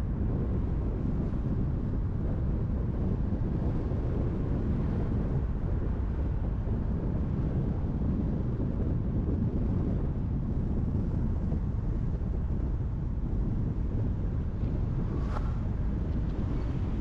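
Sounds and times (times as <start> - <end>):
car driving on highway: 0.0 - 17.0.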